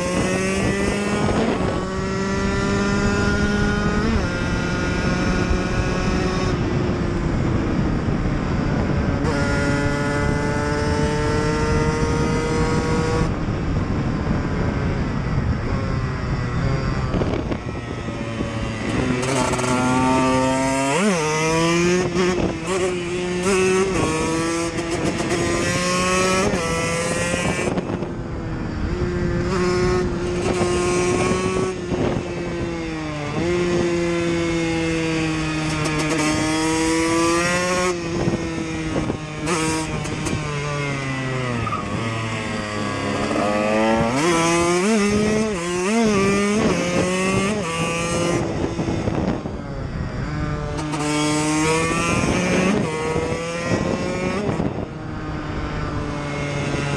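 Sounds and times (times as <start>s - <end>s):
dirt bike engine revving: 16.6s - 28.0s, 28.8s - 49.4s, 50.4s - 54.9s.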